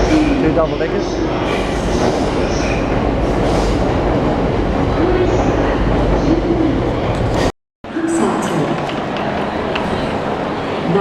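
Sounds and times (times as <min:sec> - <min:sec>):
train wheels rumbling on rail: 0:00.0 - 0:07.5.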